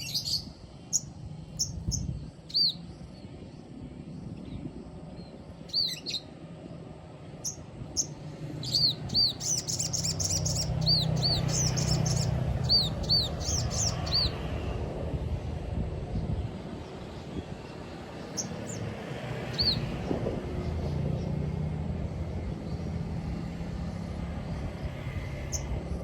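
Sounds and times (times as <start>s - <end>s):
bird singing high chirps: 0.0s - 3.3s, 5.2s - 6.3s, 7.4s - 14.4s, 19.5s - 19.9s.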